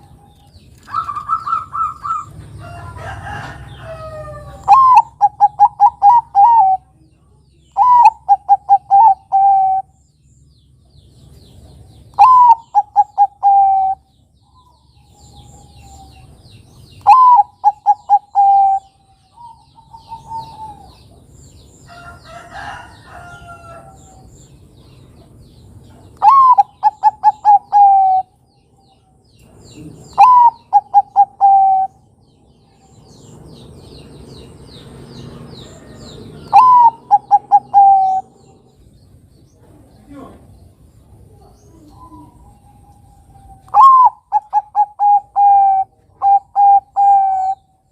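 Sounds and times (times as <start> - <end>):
dove cooing: 0.8 - 7.0, 7.8 - 10.0, 12.2 - 14.1, 17.0 - 21.2, 26.2 - 28.4, 29.7 - 32.1, 35.8 - 38.7, 41.2 - 47.8
faint bird chirps: 35.6 - 47.9.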